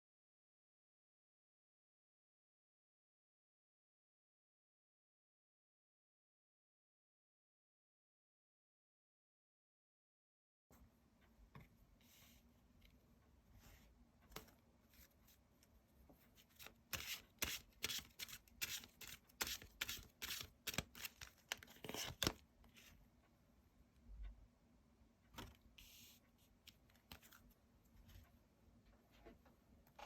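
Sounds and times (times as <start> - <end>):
cards being shuffled: 16.5 - 22.4.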